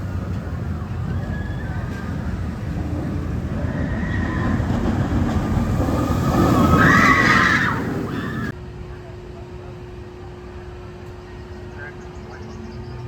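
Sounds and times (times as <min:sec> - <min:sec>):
roller coaster rumbling on track: 0:00.0 - 0:13.0.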